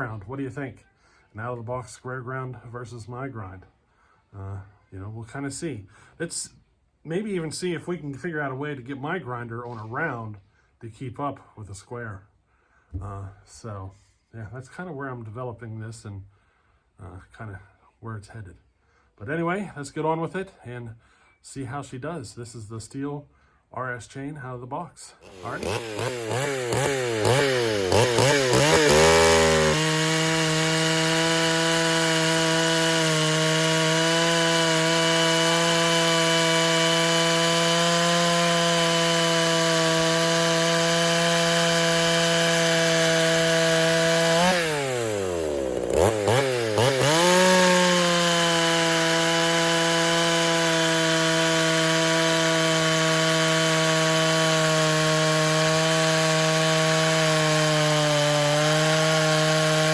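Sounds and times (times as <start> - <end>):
chainsaw cutting wood: 25.2 - 59.9
chainsaw revving: 25.2 - 59.9.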